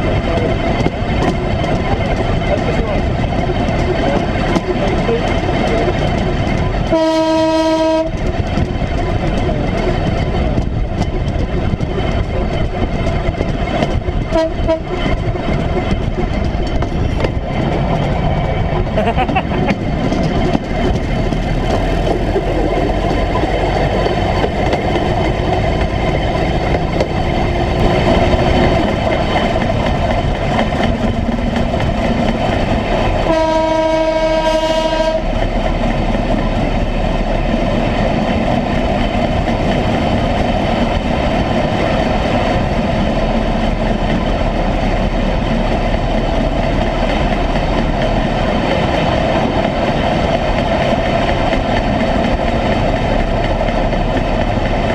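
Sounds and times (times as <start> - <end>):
wheels on rail: 0.0 - 54.9
vehicle horn: 6.9 - 8.1, 33.3 - 35.3.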